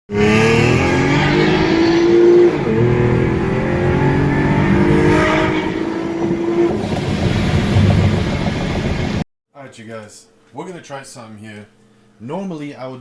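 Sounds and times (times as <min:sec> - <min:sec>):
car engine at high revs: 0:00.1 - 0:09.2.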